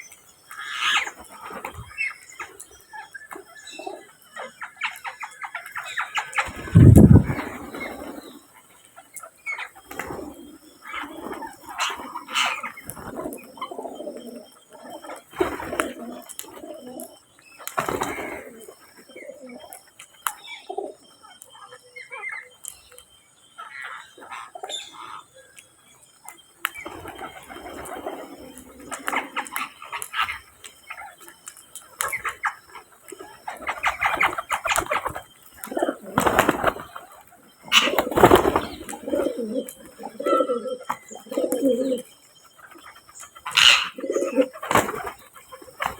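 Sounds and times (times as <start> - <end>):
pigeons cooing: 0.6 - 8.5, 9.5 - 19.9, 26.7 - 45.9
wings fluttering: 4.9 - 19.1, 26.7 - 45.9
bird chirps and calls: 37.6 - 44.6.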